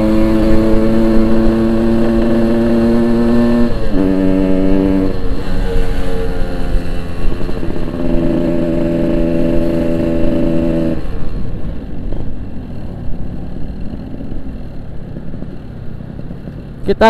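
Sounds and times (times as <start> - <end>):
low road rumble: 0.0 - 17.0
two-stroke motorcycle engine: 0.0 - 17.0.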